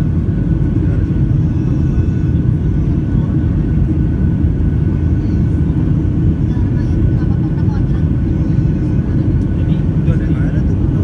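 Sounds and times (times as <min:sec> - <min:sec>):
jet engine rumble in cabin: 0:00.0 - 0:11.0.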